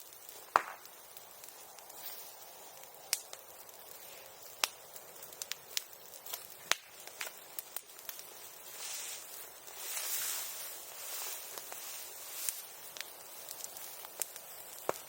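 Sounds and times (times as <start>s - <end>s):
bonfire crackling: 0.0s - 15.0s
fire hissing: 0.0s - 15.0s
fire popping: 0.0s - 15.0s.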